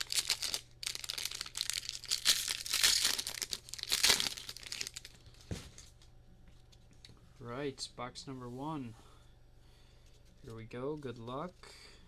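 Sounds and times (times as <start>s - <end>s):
plastic wrapping crinkling and tearing: 0.0s - 5.9s.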